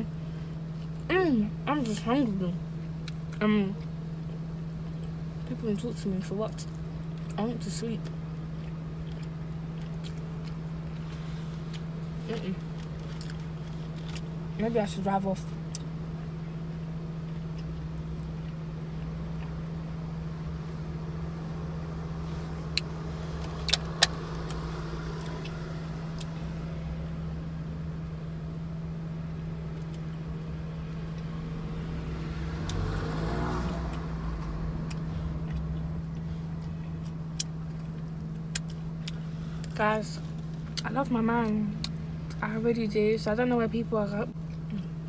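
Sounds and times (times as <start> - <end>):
car engine idling: 0.0 - 45.0
vehicle passing outside: 20.2 - 28.0, 30.4 - 37.1.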